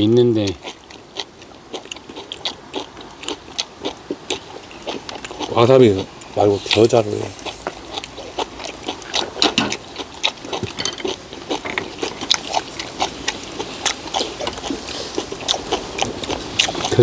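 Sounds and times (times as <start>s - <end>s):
people chewing and lip smacking: 0.0s - 17.0s.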